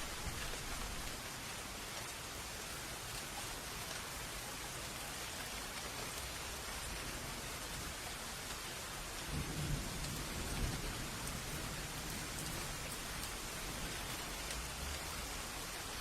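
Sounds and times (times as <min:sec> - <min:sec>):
steady rain: 0:00.0 - 0:16.0
thunder rumbling: 0:09.2 - 0:15.2.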